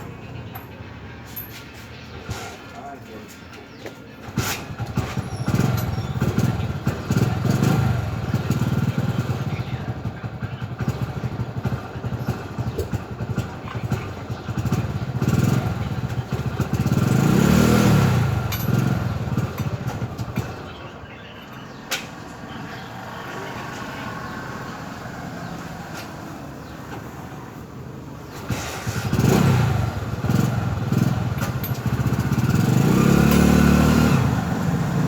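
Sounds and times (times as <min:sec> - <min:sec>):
engine running unevenly: 0:28.2 - 0:35.0.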